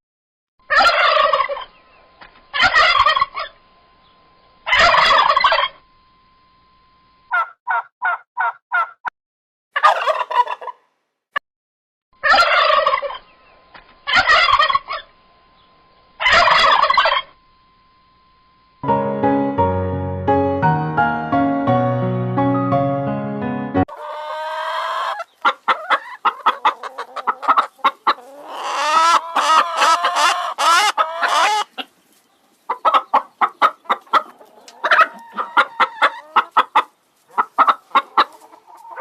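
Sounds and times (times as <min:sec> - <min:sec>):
turkey gobbling: 0:00.7 - 0:01.8, 0:02.5 - 0:03.6, 0:04.7 - 0:05.8, 0:07.3 - 0:09.0, 0:09.8 - 0:10.8, 0:12.2 - 0:13.3, 0:14.1 - 0:15.1, 0:16.2 - 0:17.3, 0:23.9 - 0:32.0, 0:32.7 - 0:39.0.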